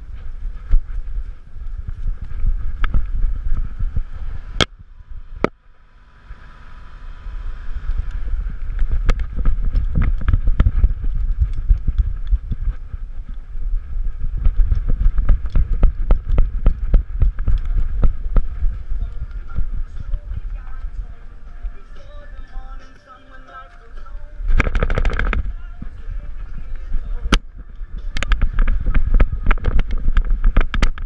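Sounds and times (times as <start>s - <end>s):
wind rumble on microphone: 0.0s - 22.9s, 24.2s - 31.0s
camera rubbing and knocking: 8.7s - 21.0s, 24.5s - 26.0s, 28.0s - 31.0s.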